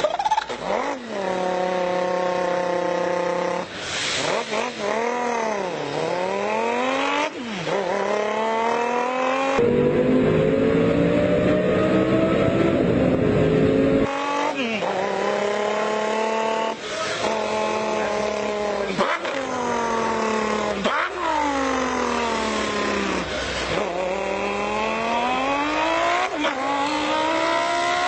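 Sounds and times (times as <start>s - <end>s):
person imitating engine revving: 0.2s - 10.0s, 14.0s - 28.0s.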